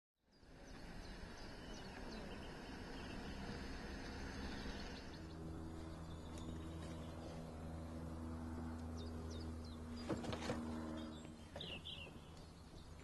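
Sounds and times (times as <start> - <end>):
small birds chirping: 0.2 - 13.0
steady low hum: 0.2 - 13.0.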